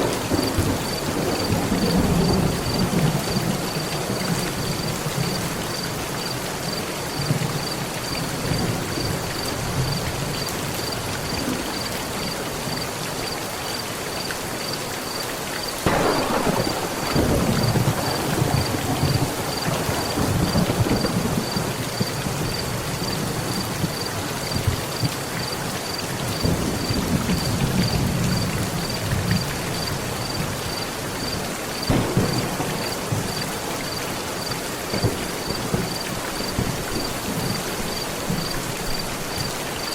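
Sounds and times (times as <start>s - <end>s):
thunder rumbling: 0.0s - 5.6s, 15.8s - 25.1s, 31.4s - 39.1s
heavy rain on a metal roof: 0.0s - 39.9s.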